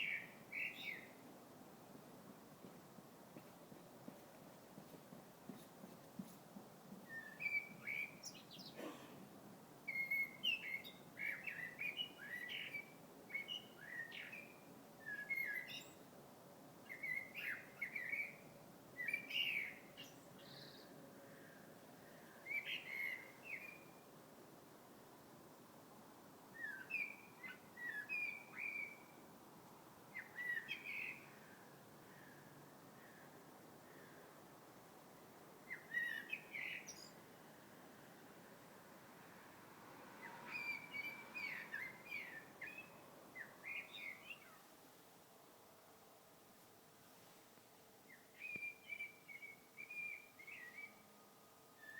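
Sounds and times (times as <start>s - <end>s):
bird chirping song: 0.0s - 1.2s, 7.0s - 8.9s, 9.9s - 16.1s, 16.8s - 24.1s, 26.5s - 29.2s, 30.1s - 34.2s, 35.6s - 37.7s, 40.2s - 44.7s, 48.0s - 51.9s.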